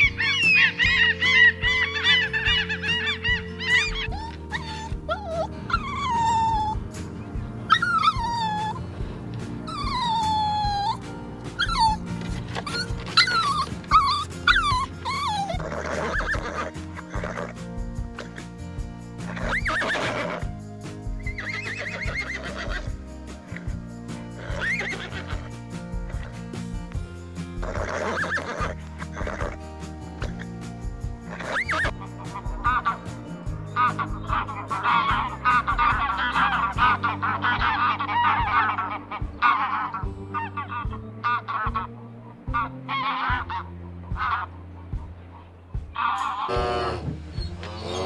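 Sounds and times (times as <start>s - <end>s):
fowl honking: 0.0s - 4.1s, 33.8s - 41.9s, 42.5s - 48.0s
high quavering animal calls: 0.0s - 9.0s, 9.7s - 18.6s, 19.2s - 26.6s, 27.6s - 48.0s
background music: 0.0s - 48.0s.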